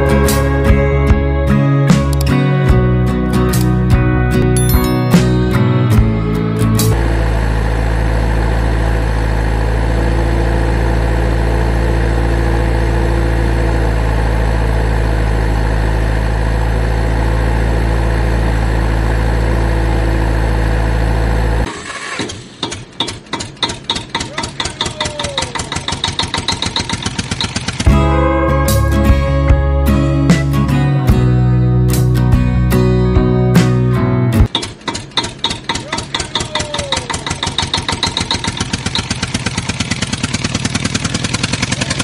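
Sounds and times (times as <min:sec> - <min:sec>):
engine idling: 0:05.5 - 0:31.4, 0:34.8 - 0:42.0.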